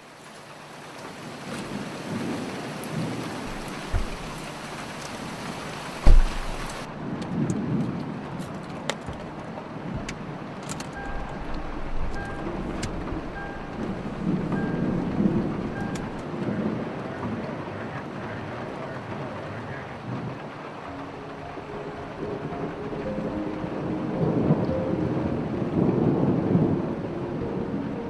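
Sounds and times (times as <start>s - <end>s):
rain falling on a car: 0.0s - 28.0s
sharp raindrops: 0.0s - 28.0s
thunder rumbling: 1.2s - 28.0s
heavy low thud: 3.5s - 4.4s, 6.0s - 6.8s.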